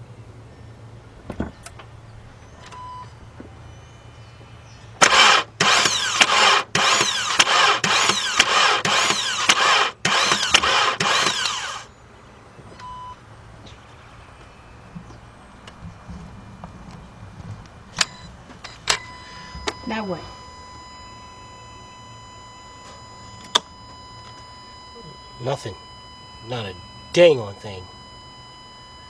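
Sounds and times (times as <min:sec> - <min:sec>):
car engine cranking: 0:05.0 - 0:11.9
short beep: 0:18.0 - 0:29.0.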